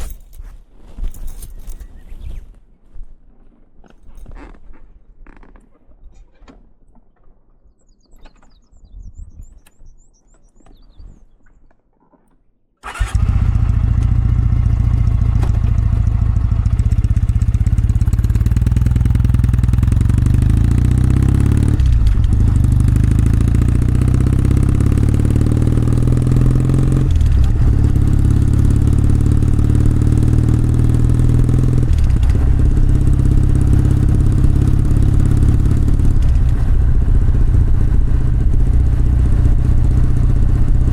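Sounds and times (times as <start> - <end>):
motorcycle engine and exhaust: 12.8 - 40.9.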